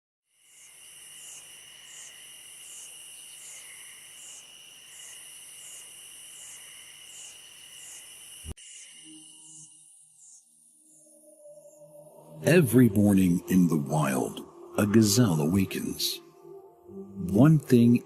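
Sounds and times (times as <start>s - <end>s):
insects trilling: 0.3s - 12.4s
pulsing insect call: 0.3s - 18.0s.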